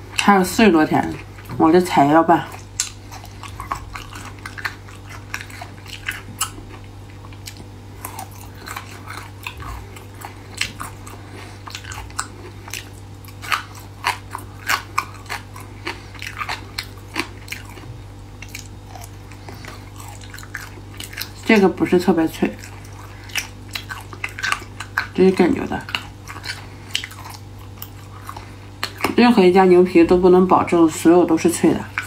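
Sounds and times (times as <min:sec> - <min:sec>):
steady low hum: 0:00.0 - 0:32.0
crisp crunching while chewing: 0:02.3 - 0:29.2.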